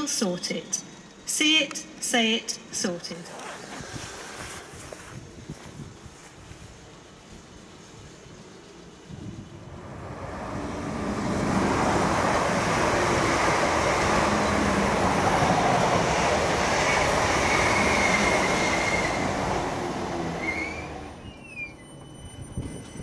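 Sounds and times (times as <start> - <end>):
train wheels rushing on rail: 3.2 - 23.0
short rising squeals: 10.5 - 23.0
thin wheel squeal: 20.4 - 23.0.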